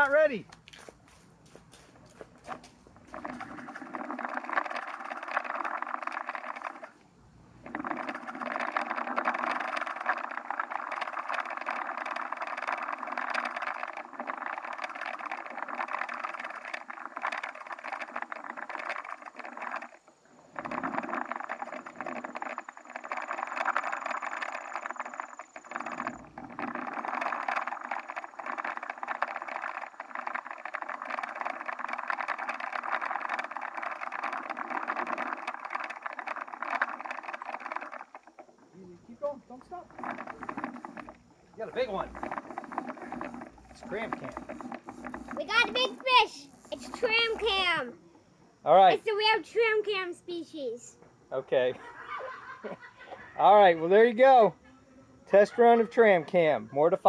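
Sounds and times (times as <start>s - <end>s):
pulleys rattling along a line: 2.2s - 7.0s, 7.6s - 47.9s.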